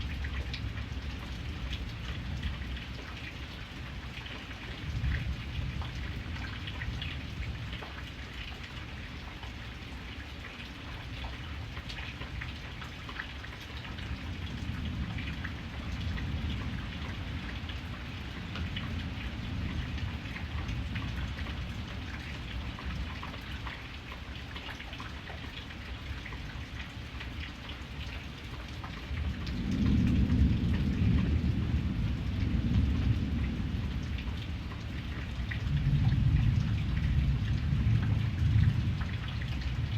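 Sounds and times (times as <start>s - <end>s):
steady rain falling: 0.0s - 39.9s
thunder rumbling: 29.2s - 39.9s.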